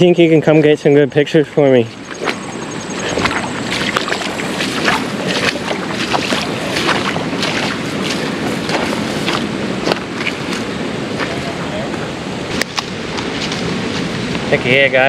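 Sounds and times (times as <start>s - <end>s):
creek water rushing: 1.8s - 15.0s
wind on microphone: 1.8s - 15.0s
short knocks and splashes: 2.1s - 11.5s.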